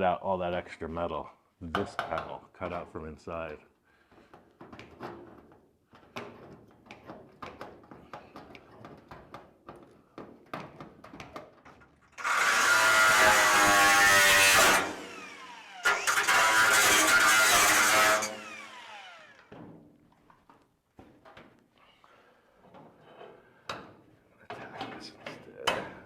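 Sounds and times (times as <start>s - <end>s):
cut-off wheel cutting steel: 12.2s - 19.5s.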